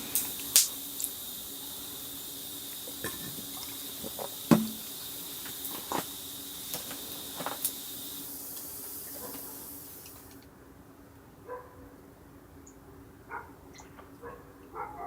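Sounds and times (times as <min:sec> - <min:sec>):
campfire wood popping: 0:00.0 - 0:08.8
fire hiss: 0:00.0 - 0:10.4.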